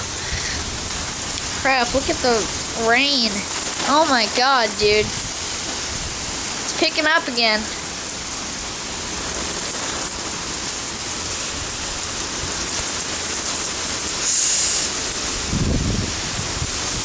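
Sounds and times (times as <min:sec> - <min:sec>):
heavy rain pouring: 0:00.0 - 0:17.0
high hiss: 0:14.0 - 0:15.7.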